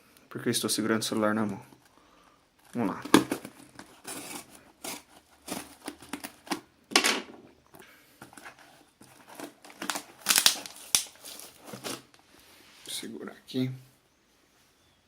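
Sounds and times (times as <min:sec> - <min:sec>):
packaging crinkling and tearing: 0:02.7 - 0:06.7, 0:08.4 - 0:12.2.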